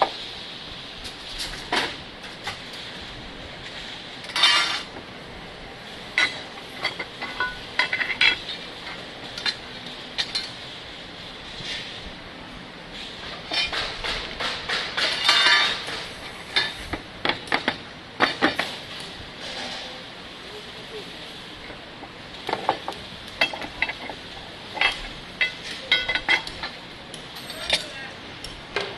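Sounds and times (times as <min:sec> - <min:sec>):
steady background hum: 0:00.0 - 0:28.9
metal parts clinking and rattling: 0:04.3 - 0:04.9, 0:06.2 - 0:09.6, 0:15.0 - 0:16.0, 0:23.4 - 0:28.0.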